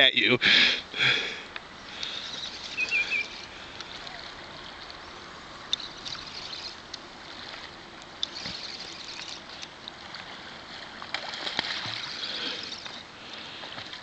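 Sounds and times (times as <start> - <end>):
flowing river water: 0.0 - 14.0
high wavering squeal: 5.7 - 6.8, 8.2 - 9.6, 11.8 - 13.0
faint clicks: 5.7 - 7.1, 8.0 - 10.0.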